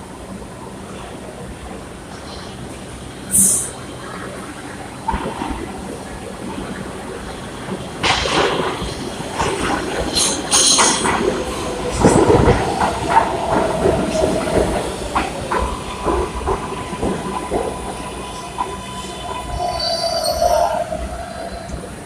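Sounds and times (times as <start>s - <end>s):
hiss: 3.3s - 3.7s
train wheels clattering over rail joints: 7.8s - 18.7s.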